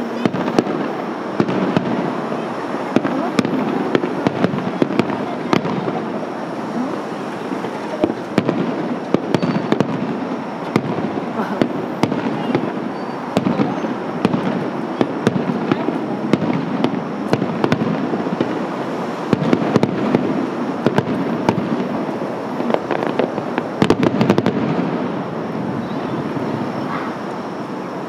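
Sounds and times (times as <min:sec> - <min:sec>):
continuous rumble: 0:00.0 - 0:28.0
firework crackling: 0:00.0 - 0:28.0
firework shells bursting: 0:07.4 - 0:25.2.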